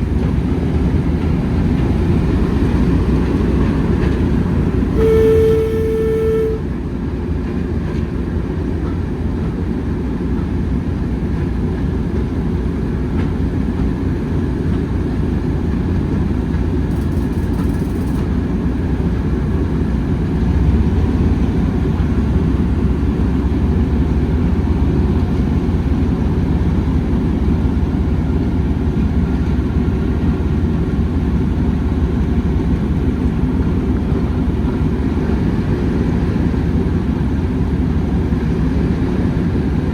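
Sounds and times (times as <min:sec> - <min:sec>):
train rumbling: 0:00.0 - 0:39.9
short train horn: 0:04.9 - 0:06.9.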